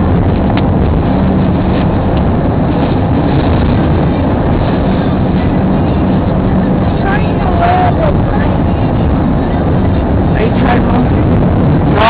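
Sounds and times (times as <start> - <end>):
car engine hum: 0.0 - 12.0
road and tyre noise: 0.0 - 12.0.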